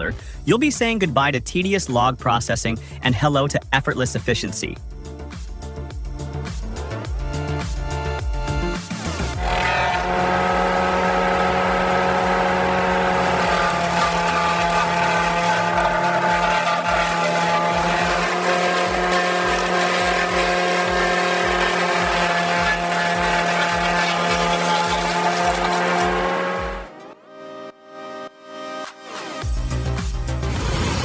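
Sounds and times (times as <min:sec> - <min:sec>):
heavy machine engine hum: 0:09.2 - 0:27.0.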